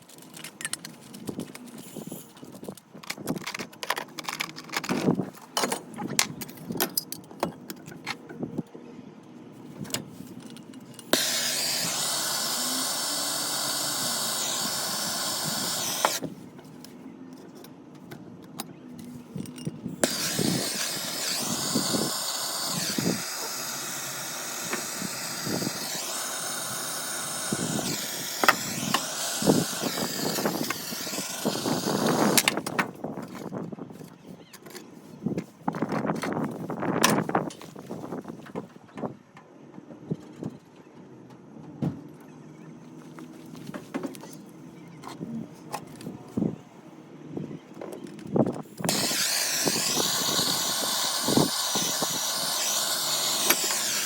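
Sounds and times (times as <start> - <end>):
clicks and knocks of parts: 0.0 - 8.4
power tool motor whining: 11.1 - 16.3, 20.0 - 32.8, 48.8 - 54.0.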